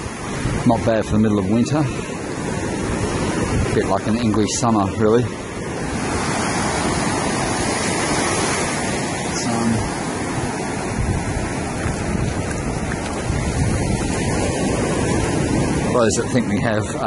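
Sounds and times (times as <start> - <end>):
ocean surf breaking: 0.0 - 17.0
wind on microphone: 0.0 - 17.0.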